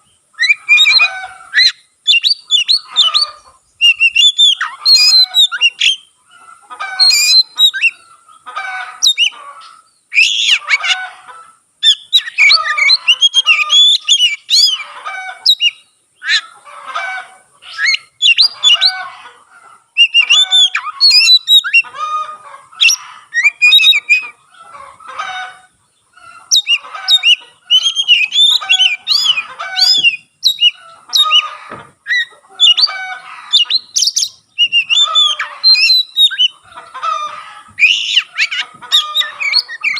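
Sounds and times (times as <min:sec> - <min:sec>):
bird singing whistled phrases: 0:00.4 - 0:06.1, 0:07.0 - 0:08.0, 0:10.1 - 0:10.9, 0:11.8 - 0:14.8, 0:15.4 - 0:16.4, 0:17.7 - 0:19.0, 0:20.0 - 0:21.9, 0:22.8 - 0:24.3, 0:26.5 - 0:31.4, 0:32.1 - 0:33.0, 0:33.6 - 0:36.6, 0:37.8 - 0:39.9.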